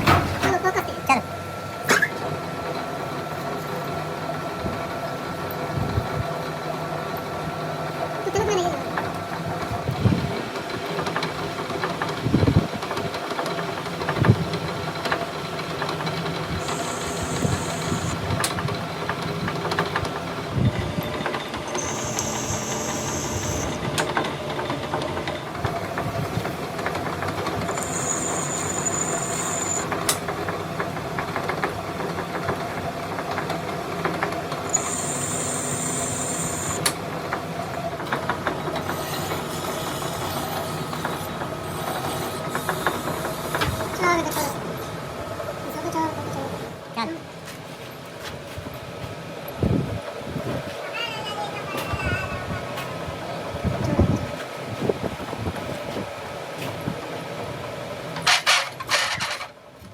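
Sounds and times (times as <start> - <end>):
machine hum: 13.4 - 47.0
high-pitched squeals: 16.6 - 18.3, 21.7 - 23.8, 27.7 - 29.9, 34.7 - 36.8.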